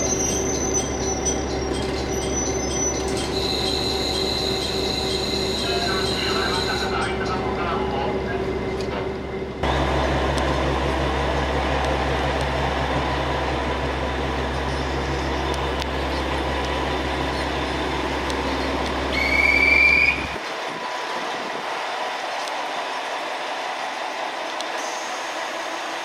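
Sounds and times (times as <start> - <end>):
wheels squealing: 0.0 - 7.2, 17.1 - 21.5
rail noise: 0.0 - 26.0
railcar engine hum: 0.0 - 26.0.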